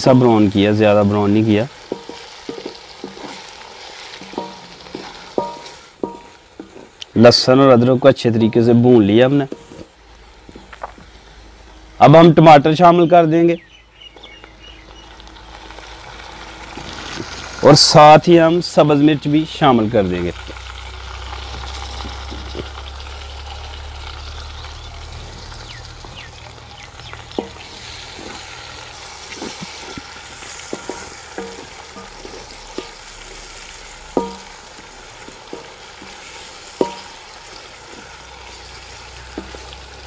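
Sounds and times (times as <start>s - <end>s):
vegetables sizzling in hot oil: 0.0s - 40.0s
wooden spatula knocking and scraping: 1.9s - 7.0s, 9.4s - 9.9s, 10.5s - 11.1s, 27.3s - 28.6s, 29.2s - 33.1s, 34.1s - 40.0s.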